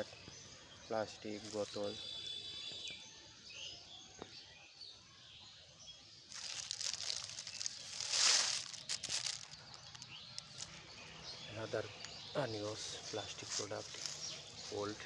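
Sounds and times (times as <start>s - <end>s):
birds chirping faintly: 0.0s - 15.0s
loud rustling and crackling: 6.3s - 11.0s.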